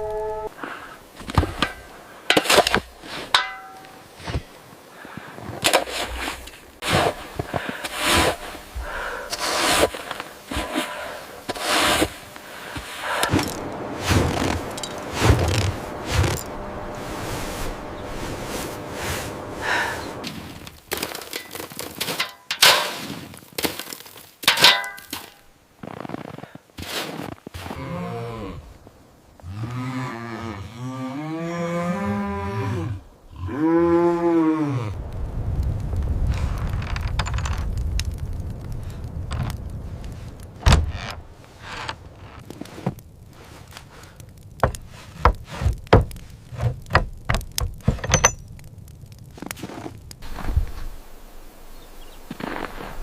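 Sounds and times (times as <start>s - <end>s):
cow mooing: 0.0s - 0.5s
soft rustling: 2.8s - 20.8s, 39.4s - 46.8s.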